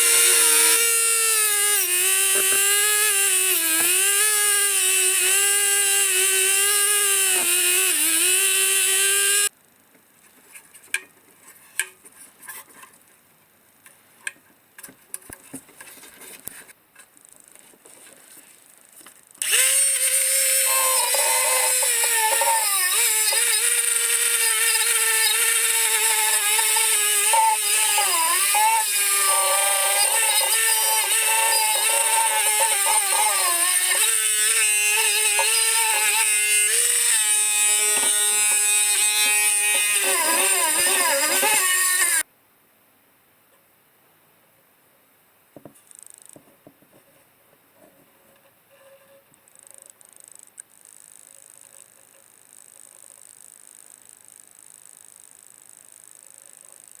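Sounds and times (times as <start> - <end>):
high-speed power tool running: 0.0 - 9.5, 19.4 - 42.2.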